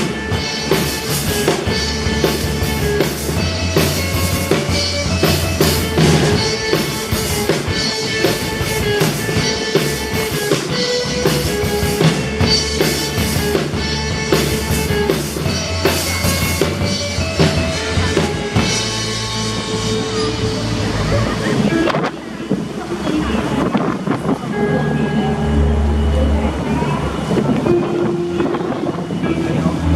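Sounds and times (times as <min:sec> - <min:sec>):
drum kit beat: 0:00.0 - 0:21.4
live band music: 0:00.0 - 0:29.9
sustained melody notes: 0:00.0 - 0:29.9.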